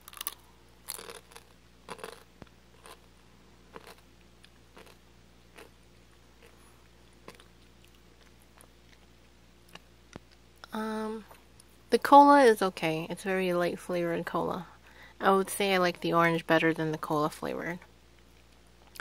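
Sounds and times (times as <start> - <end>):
chewing candy crunches: 0.0 - 3.1, 3.7 - 5.8, 6.4 - 10.4
low background hum: 0.0 - 19.0.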